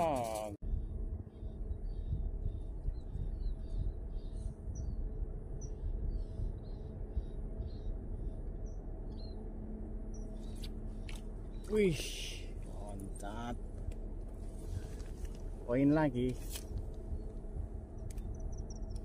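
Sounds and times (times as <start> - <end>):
low background rumble: 0.0 - 19.0
small bird chirping: 1.4 - 9.4, 16.6 - 19.0.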